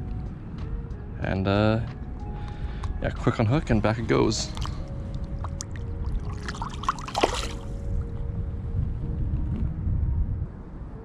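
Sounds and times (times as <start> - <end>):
water splashing and trickling: 3.6 - 8.1.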